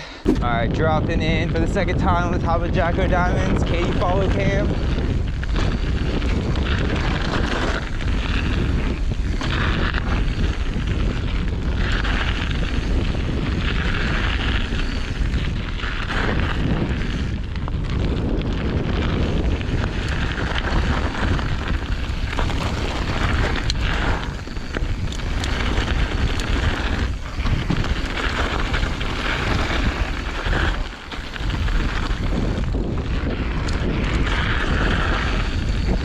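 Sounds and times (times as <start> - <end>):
wind buffeting microphone: 0.0 - 36.0
tyres rolling over dirt: 9.5 - 36.0.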